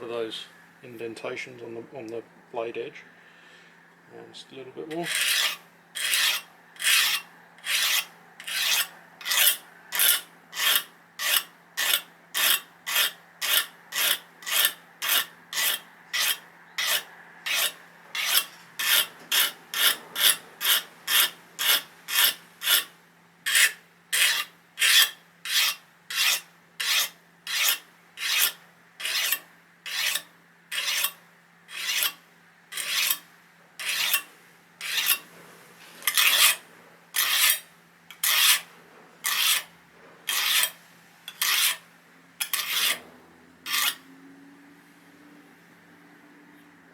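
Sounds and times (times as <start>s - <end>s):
file rasping on knife edge: 4.9s - 35.3s, 36.0s - 36.6s, 37.2s - 39.7s, 40.3s - 41.8s, 42.4s - 43.0s, 43.7s - 44.0s.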